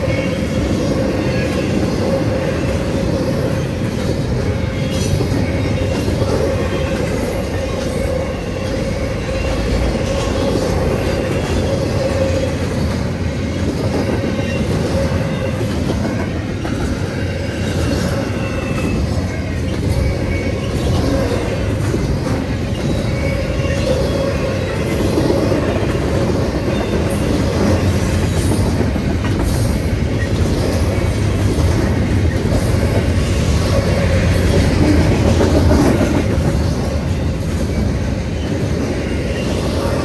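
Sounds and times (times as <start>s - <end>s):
freight train wheels rumbling on rail: 0.0s - 40.0s.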